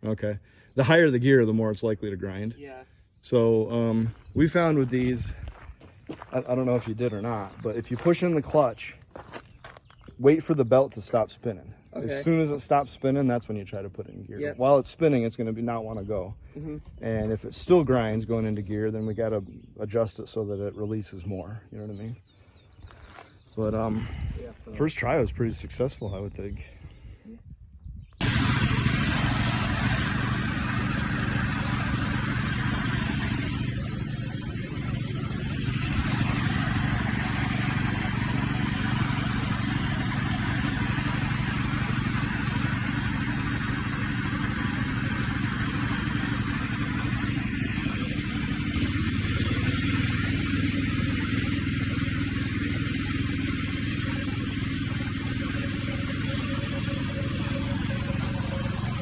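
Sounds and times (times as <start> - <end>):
small gasoline engine running: 28.2 - 59.0.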